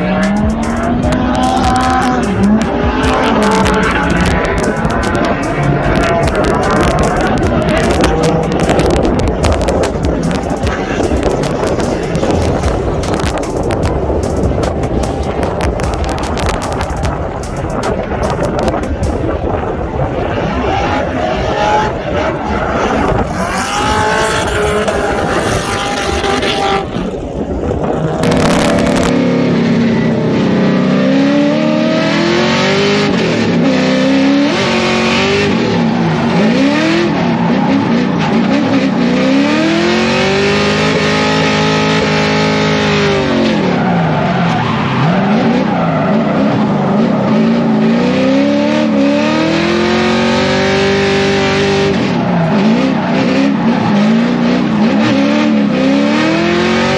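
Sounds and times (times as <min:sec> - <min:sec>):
car engine revving hard: 0:00.0 - 0:56.9.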